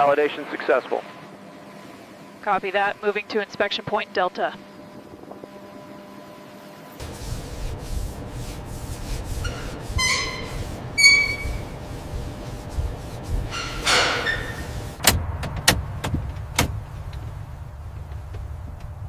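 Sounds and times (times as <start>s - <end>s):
low mechanical rumble: 0.0s - 19.0s
high metallic squeals: 9.3s - 11.8s, 13.5s - 14.8s.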